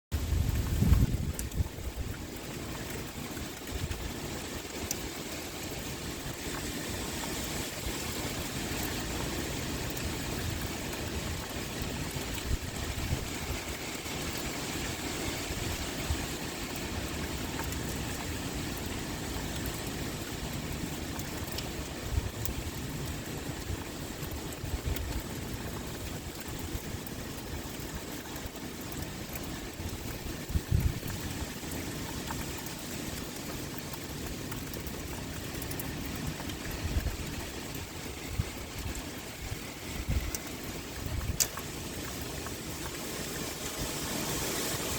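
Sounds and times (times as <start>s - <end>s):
wind: 0.0s - 44.9s
pouring rain: 0.1s - 44.9s.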